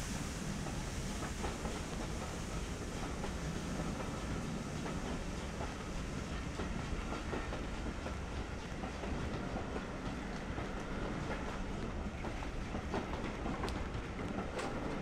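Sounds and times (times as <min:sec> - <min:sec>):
train wheels clicking over joints: 0:00.0 - 0:15.0.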